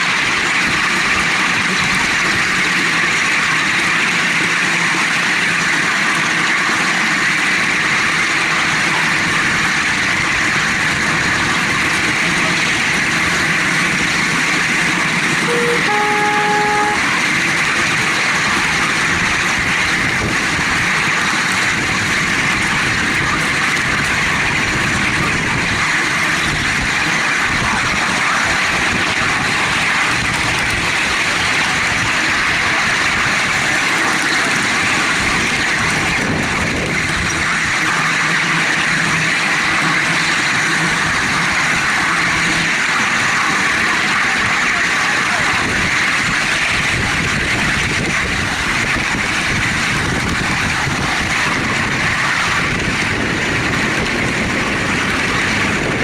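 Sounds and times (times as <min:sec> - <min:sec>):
miniature train rumbling on track: 0:00.0 - 0:56.0
train horn toot: 0:15.3 - 0:17.3.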